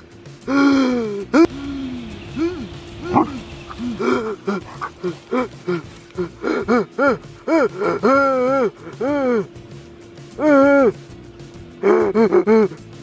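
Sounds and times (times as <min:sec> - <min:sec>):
dog whining and yelping: 0:02.4 - 0:05.1.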